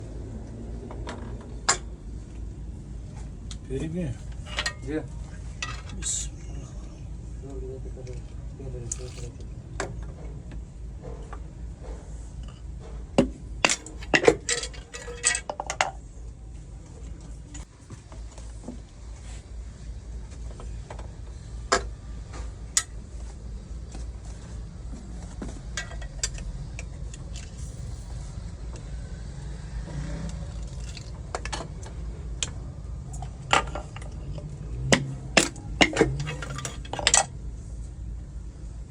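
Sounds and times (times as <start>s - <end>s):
steady low hum: 0.0s - 38.9s
metal parts clinking and knocking: 4.2s - 6.2s, 8.1s - 9.4s, 13.2s - 16.0s, 25.7s - 28.1s, 30.3s - 37.3s.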